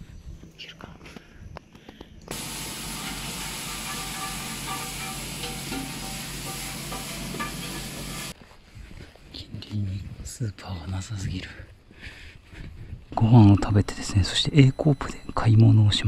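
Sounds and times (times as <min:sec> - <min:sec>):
food sizzling in a hot pan: 0:02.3 - 0:08.4.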